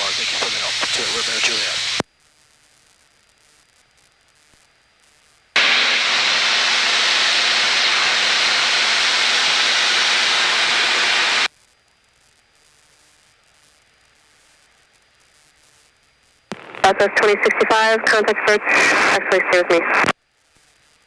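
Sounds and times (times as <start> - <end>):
radio static hiss: 0.0 - 2.0, 5.6 - 11.5, 12.6 - 21.0.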